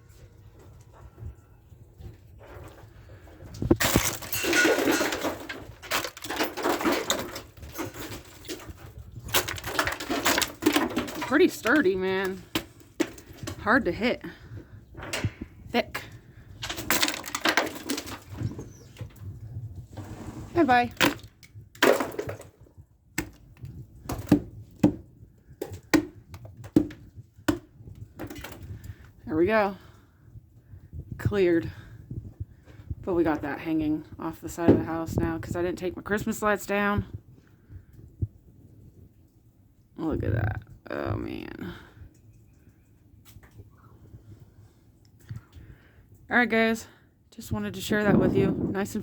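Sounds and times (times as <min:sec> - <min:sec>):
ice and snow clattering: 0:16.6 - 0:18.5.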